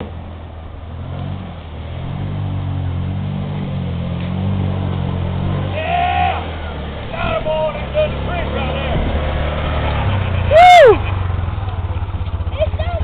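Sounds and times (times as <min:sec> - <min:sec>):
utility vehicle engine running: 0:00.0 - 0:13.0.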